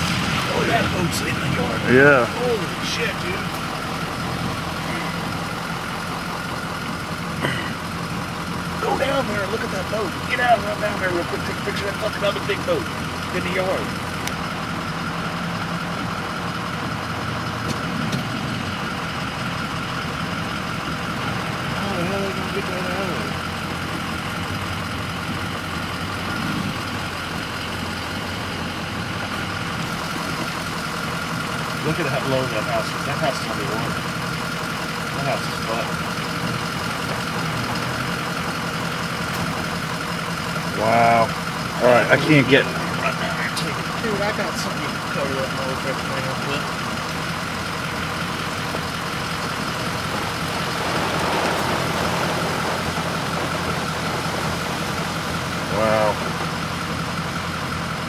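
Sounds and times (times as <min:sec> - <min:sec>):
rushing noise: 0:00.0 - 0:03.4, 0:49.4 - 0:57.3
road noise: 0:00.0 - 0:58.0
vehicle engine running: 0:00.0 - 0:58.0.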